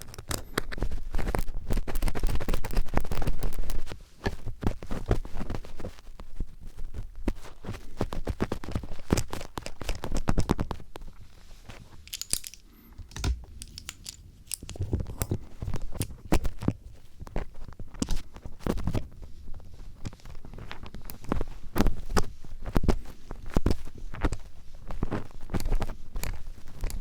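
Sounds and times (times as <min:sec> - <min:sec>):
screwdriver tip scraping and tapping: 0:12.0 - 0:16.6.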